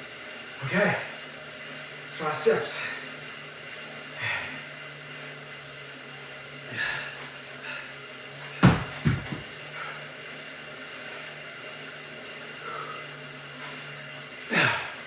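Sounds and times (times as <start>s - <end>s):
sharp knocks: 8.6s - 9.5s
heavy breath out: 14.5s - 15.0s.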